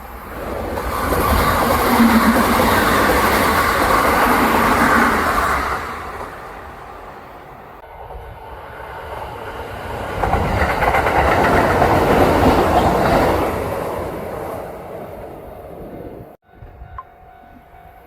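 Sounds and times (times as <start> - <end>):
electric train passing: 0.0 - 18.0
wheels clacking over rail joints: 9.5 - 14.7.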